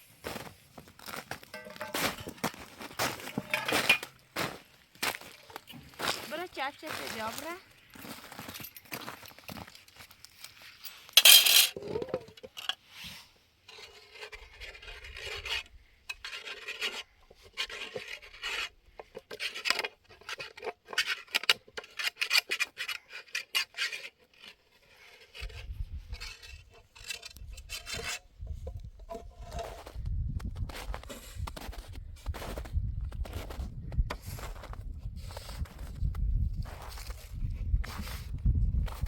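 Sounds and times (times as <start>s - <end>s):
rasping scraping strokes: 13.0s - 29.9s.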